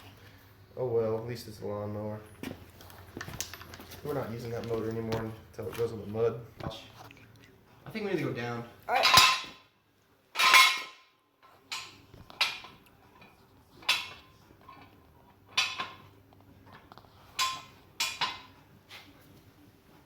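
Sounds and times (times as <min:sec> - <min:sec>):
metal clanks and knocks: 0:10.4 - 0:16.2, 0:17.3 - 0:18.6.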